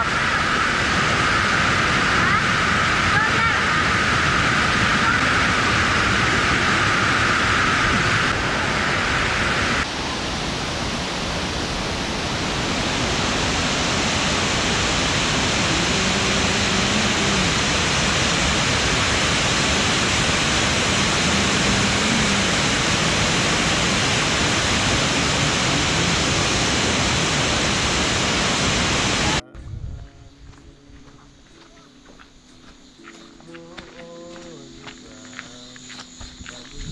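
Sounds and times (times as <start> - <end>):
waterfall roaring: 0.0 - 29.4.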